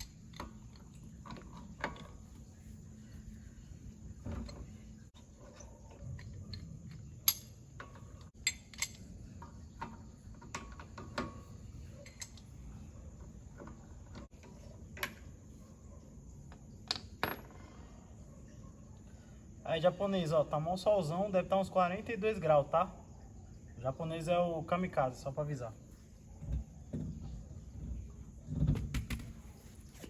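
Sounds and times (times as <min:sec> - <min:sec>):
metal tools clicking: 0:06.1 - 0:09.1.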